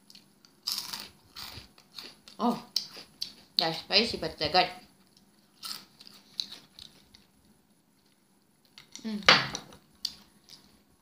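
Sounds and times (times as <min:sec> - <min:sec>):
crunchy snacks being chewed: 0:00.1 - 0:03.6, 0:05.5 - 0:07.3.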